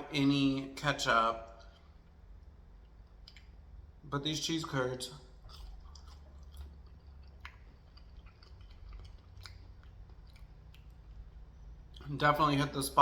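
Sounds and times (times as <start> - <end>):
close-up chewing: 1.4 - 4.0, 4.7 - 12.2
small mouth clicks: 2.8 - 3.7, 5.4 - 11.2.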